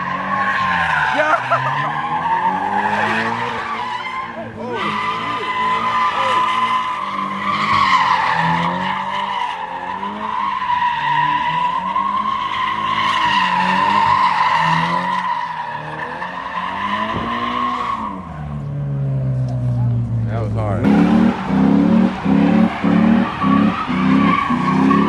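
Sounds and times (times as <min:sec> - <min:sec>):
car engine revving: 0:00.0 - 0:25.0
car tyres squealing: 0:00.0 - 0:25.0.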